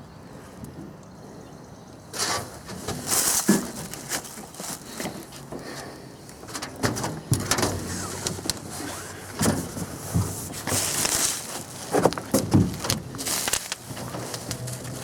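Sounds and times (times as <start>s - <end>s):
heavy parts knocking and clunking: 6.4s - 15.0s
wood scraping: 6.6s - 15.0s.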